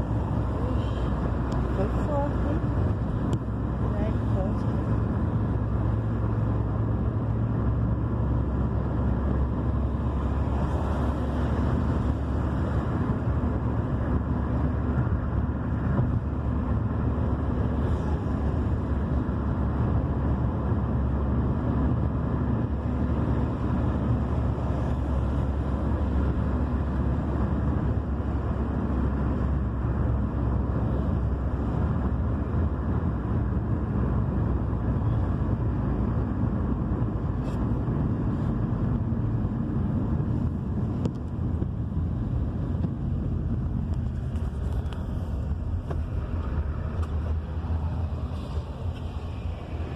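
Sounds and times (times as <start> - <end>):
car driving on road: 0.0 - 49.9.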